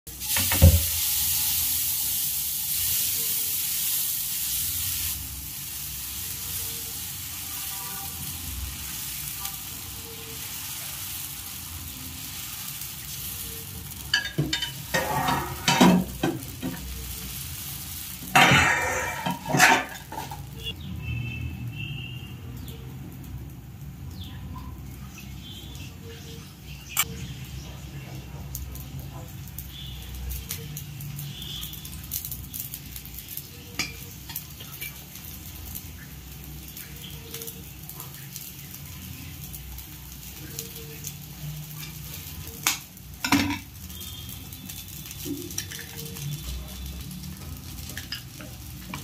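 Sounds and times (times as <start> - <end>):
batter sizzling on a hot pan: 0.1 - 49.0
metal utensil scraping a pan: 13.9 - 17.1, 18.2 - 20.8, 33.5 - 35.4, 40.4 - 49.0.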